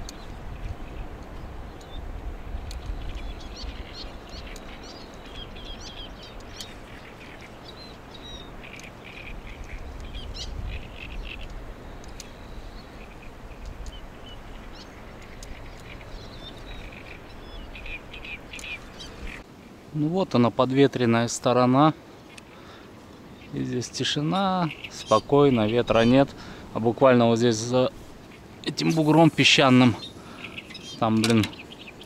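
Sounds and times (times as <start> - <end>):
birds chirping and calling: 0.0 - 19.8, 21.4 - 32.0.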